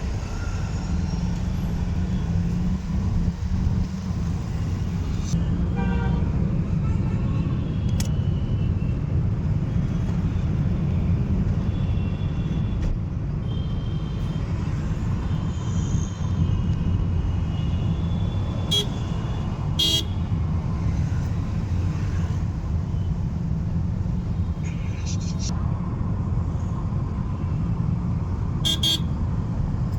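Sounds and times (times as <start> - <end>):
car engine and road rumble: 0.0 - 29.9
car horns honking: 18.7 - 19.0, 19.8 - 20.2, 28.6 - 29.1.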